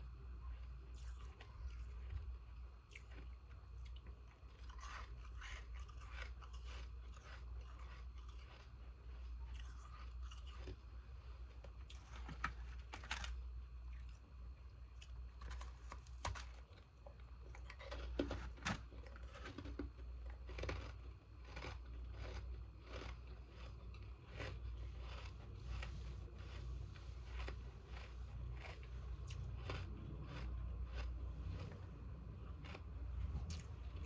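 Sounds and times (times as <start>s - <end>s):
steady low hum: 0.0s - 34.0s
ice crunching being chewed: 0.4s - 34.0s.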